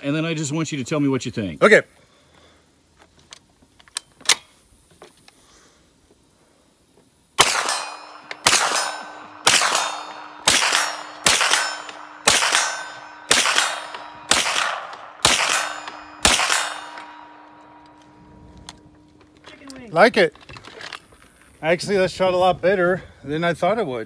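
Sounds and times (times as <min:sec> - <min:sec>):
rifle gunshots: 0:07.4 - 0:18.2
steel target ringing: 0:07.4 - 0:19.4.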